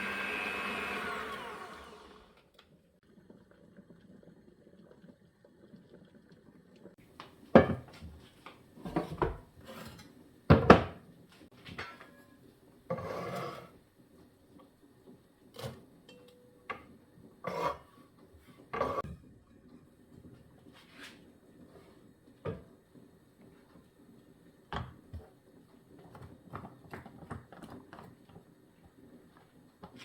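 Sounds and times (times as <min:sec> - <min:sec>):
utensils and dishes clinking: 0:15.6 - 0:16.7.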